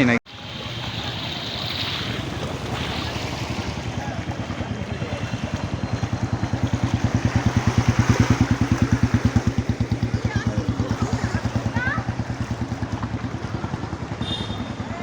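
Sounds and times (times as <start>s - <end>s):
vehicle engine throbbing: 0.3s - 15.0s.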